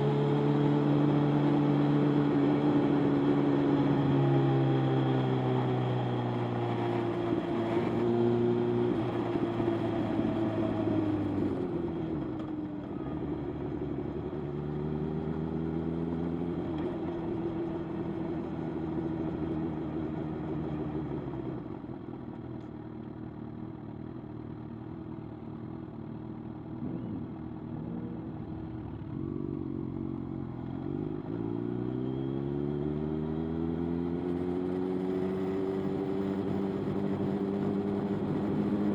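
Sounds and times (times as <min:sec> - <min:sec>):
motorcycle engine running: 0:16.3 - 0:31.5.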